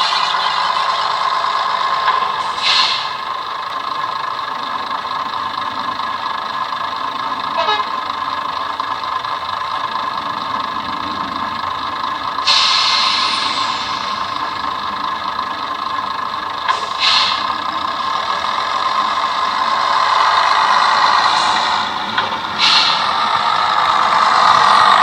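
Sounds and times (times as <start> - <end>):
diesel railcar engine through small speaker: 0.0 - 25.0
hiss: 1.5 - 3.4, 12.4 - 14.6, 16.7 - 25.0.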